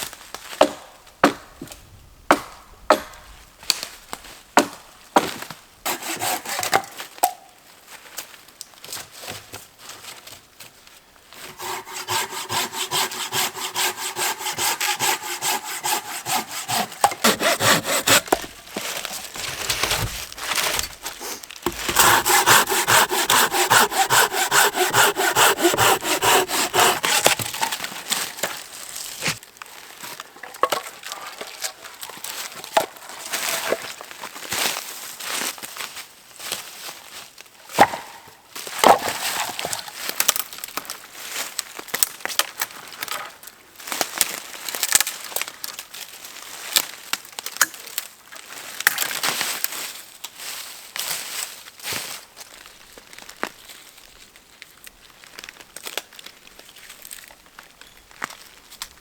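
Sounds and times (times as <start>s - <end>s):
handsaw cutting wood: 5.9s - 6.8s, 11.4s - 28.5s.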